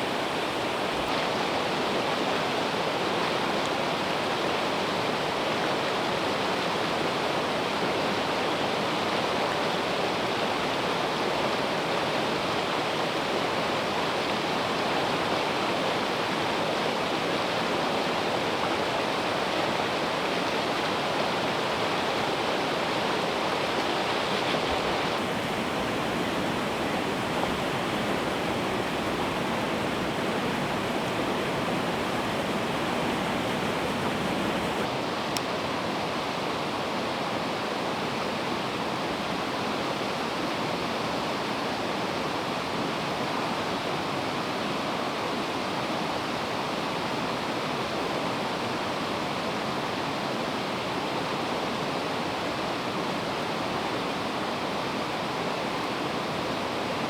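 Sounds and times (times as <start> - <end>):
river water rushing: 13.5 - 35.2.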